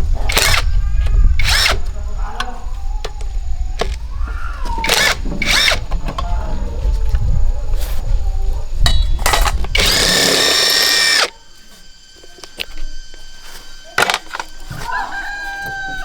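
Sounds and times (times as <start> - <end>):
power tool bursts: 0.2 - 2.0, 4.8 - 6.0, 9.2 - 14.9.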